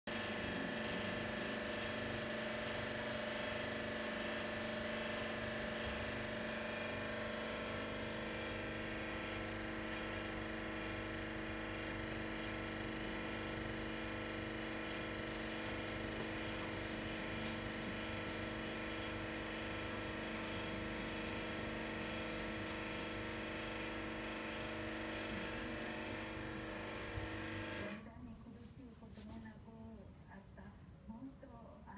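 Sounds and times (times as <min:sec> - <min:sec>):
motor hum with constant tones: 0:00.1 - 0:31.9.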